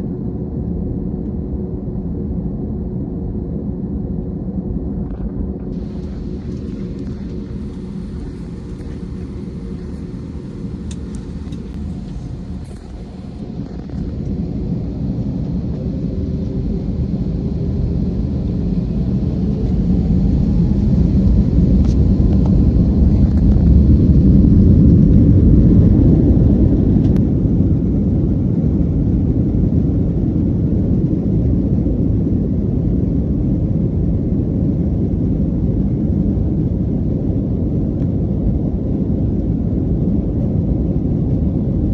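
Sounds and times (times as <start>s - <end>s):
airliner cabin engine rumble: 0.0s - 41.9s.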